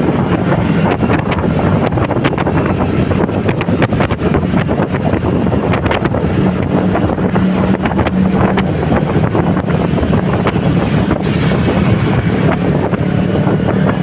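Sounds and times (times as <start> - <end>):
motorcycle engine hum: 0.0 - 14.0
wind buffeting microphone: 0.0 - 14.0.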